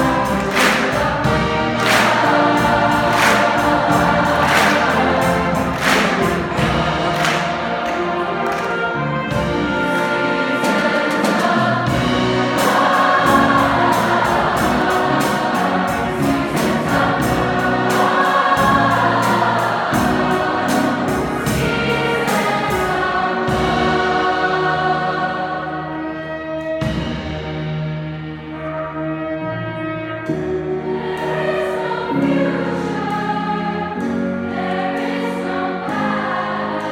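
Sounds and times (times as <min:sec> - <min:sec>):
steady drum beat: 0:00.0 - 0:25.6
large choir singing: 0:00.0 - 0:27.4, 0:28.2 - 0:36.9
jazz band: 0:00.0 - 0:36.9.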